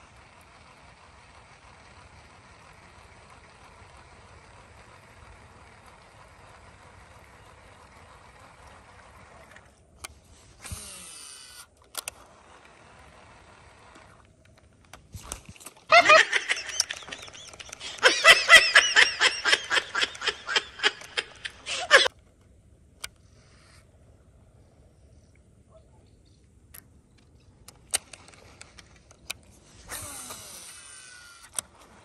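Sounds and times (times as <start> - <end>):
fishing line whirring off reel: 0.0 - 14.4, 15.1 - 22.1, 27.6 - 32.0
fishing reel cranking: 10.5 - 14.2, 27.7 - 32.0.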